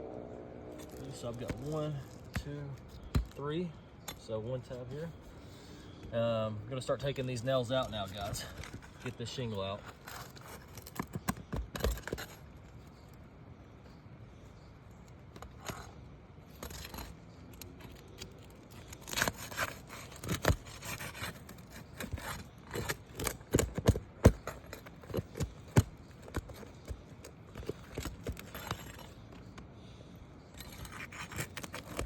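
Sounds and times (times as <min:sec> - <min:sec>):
metal tool scraping shingles: 0:15.4 - 0:29.6, 0:30.5 - 0:32.0.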